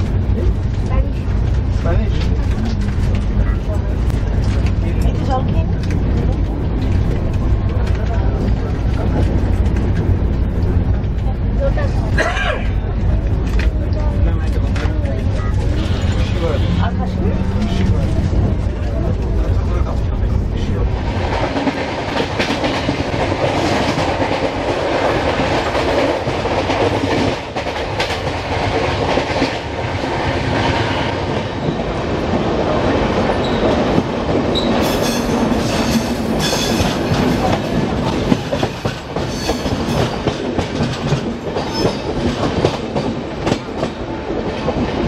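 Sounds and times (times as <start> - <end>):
train rolling rumble: 0.0 - 45.0.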